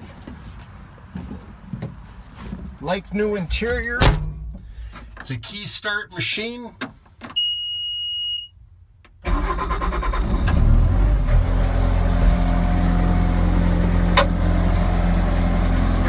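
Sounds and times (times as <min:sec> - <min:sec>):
electronic beep: 0:07.4 - 0:08.5
diesel engine starting and running: 0:09.2 - 0:16.0.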